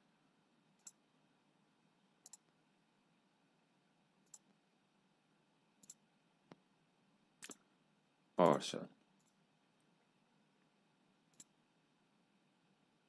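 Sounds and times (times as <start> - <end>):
computer mouse clicks: 0.8 - 1.0, 2.2 - 2.6, 4.2 - 4.5, 5.8 - 6.6, 7.4 - 7.7, 9.2 - 9.4, 11.3 - 11.6.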